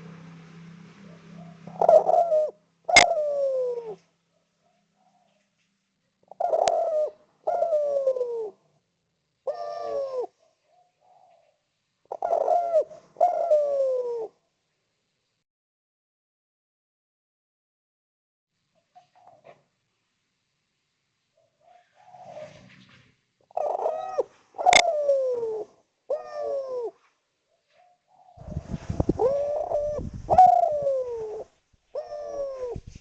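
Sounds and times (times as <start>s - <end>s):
dove cooing: 1.0s - 5.5s, 6.2s - 8.6s, 9.4s - 14.4s, 18.9s - 19.6s, 21.4s - 22.7s, 23.5s - 33.0s.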